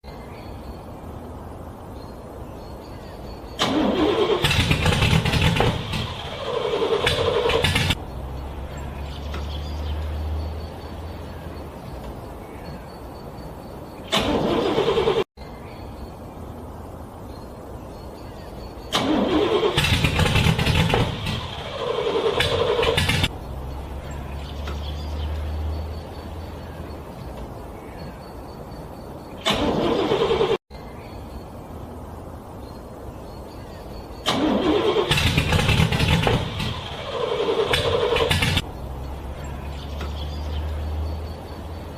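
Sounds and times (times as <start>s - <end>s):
low engine rumbling: 0.7s - 31.0s, 31.7s - 41.9s
car engine cranking: 3.6s - 11.1s, 14.1s - 15.3s, 18.9s - 26.5s, 29.4s - 30.6s, 34.2s - 41.9s.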